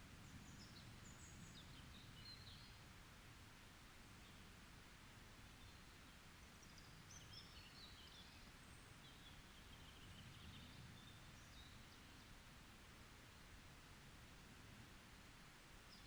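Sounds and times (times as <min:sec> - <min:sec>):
low rumble of forest ambience: 0:00.0 - 0:16.0
songbird chirps and twittering: 0:00.2 - 0:02.8, 0:05.6 - 0:12.4.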